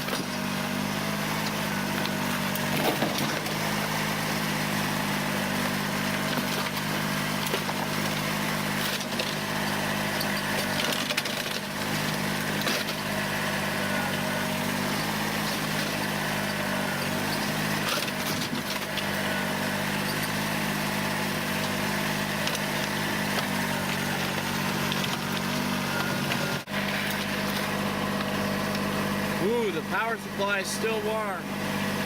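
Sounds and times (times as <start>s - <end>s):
diesel tractor engine running: 0.0s - 32.0s
plastic and metal crunching: 6.2s - 13.1s.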